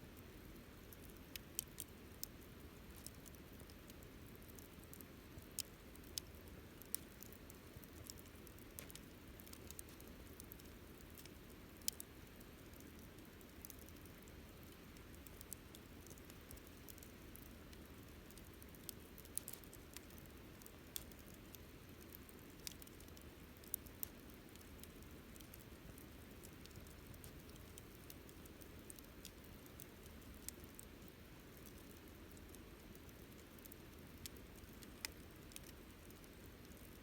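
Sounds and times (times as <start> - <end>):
fire burning: 0.8 - 37.0
campfire pops and snaps: 15.2 - 30.9, 31.6 - 36.9.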